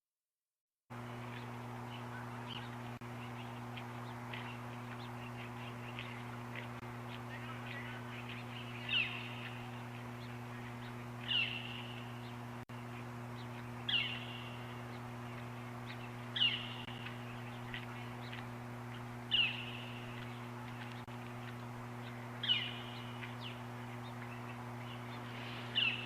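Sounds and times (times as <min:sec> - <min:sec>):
steady low hum: 0:00.9 - 0:26.0
bird call: 0:07.3 - 0:12.4, 0:13.4 - 0:15.0, 0:15.8 - 0:21.1, 0:22.0 - 0:26.0.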